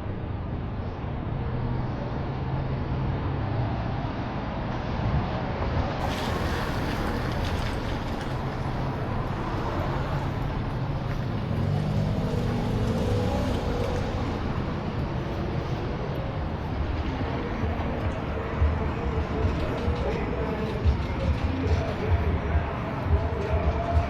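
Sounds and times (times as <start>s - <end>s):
road traffic hum: 0.0s - 24.0s
vehicle passing: 6.0s - 24.0s.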